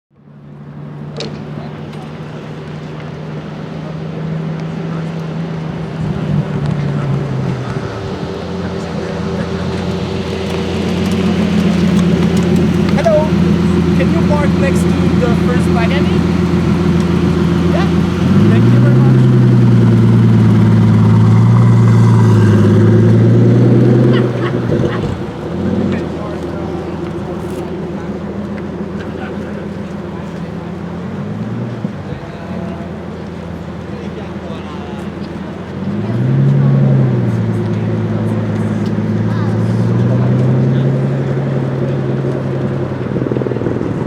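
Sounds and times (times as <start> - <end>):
car engine humming at low revs: 0.2 - 44.0.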